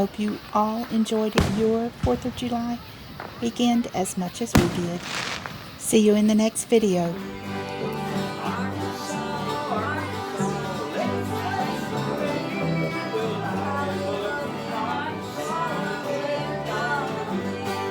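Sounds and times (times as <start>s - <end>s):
bluegrass music: 6.8s - 17.9s
plucked guitar and banjo: 7.2s - 17.9s.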